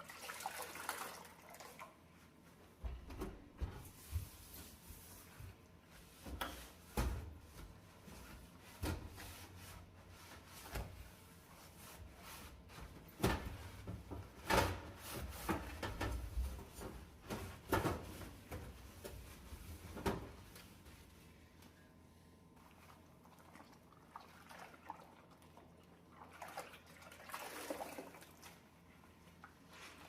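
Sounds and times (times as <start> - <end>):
hand scrubbing an oven: 2.6 - 21.4.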